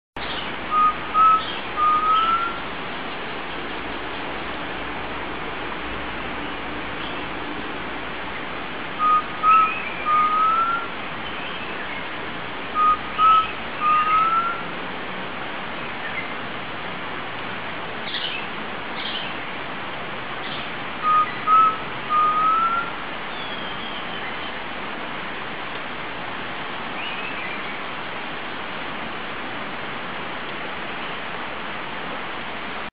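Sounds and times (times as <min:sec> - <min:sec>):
bird whistling phrases: 0:00.3 - 0:02.6, 0:09.0 - 0:11.8, 0:12.8 - 0:14.7, 0:20.4 - 0:24.5.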